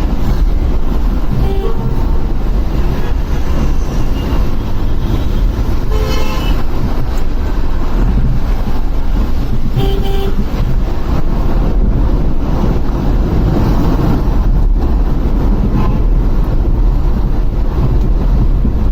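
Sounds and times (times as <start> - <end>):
traffic: 0.0 - 18.9
wind rumble on microphone: 0.0 - 18.9
vehicle horn: 1.3 - 2.1, 2.8 - 6.7, 9.7 - 10.6.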